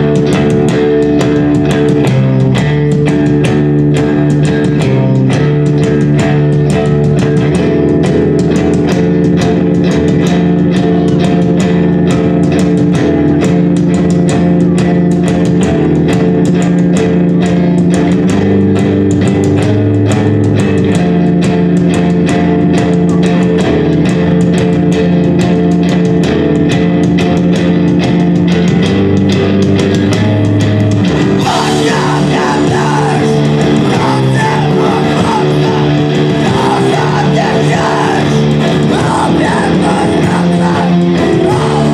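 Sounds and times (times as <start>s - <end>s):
rock band playing live: 0.0s - 41.9s
person singing: 29.8s - 41.9s.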